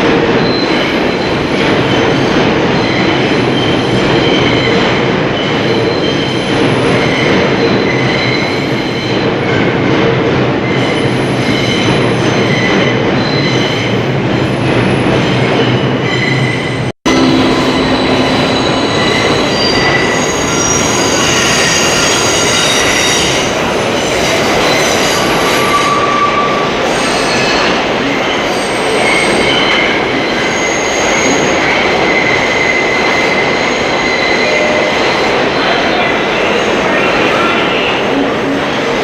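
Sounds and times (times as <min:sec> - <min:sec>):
train rolling past: 0:00.0 - 0:30.6
wheels squealing on rails: 0:00.4 - 0:09.5, 0:10.6 - 0:39.0.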